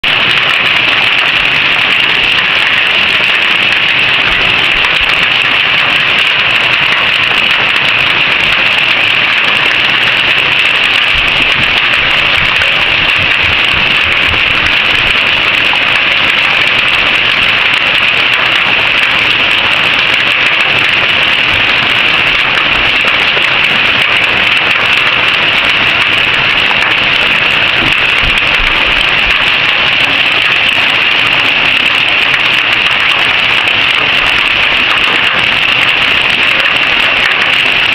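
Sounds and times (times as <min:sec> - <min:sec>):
heavy hail falling: 0:00.0 - 0:37.9.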